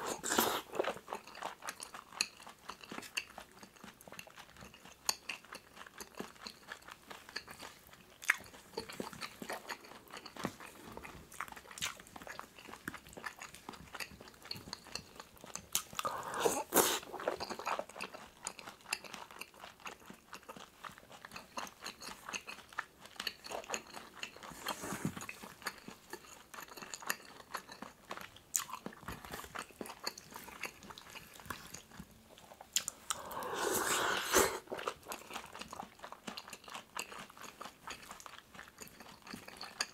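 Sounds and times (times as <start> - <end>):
chewing and wet mouth sounds: 0.0 - 39.9
mouth clicks and smacks: 32.6 - 35.7.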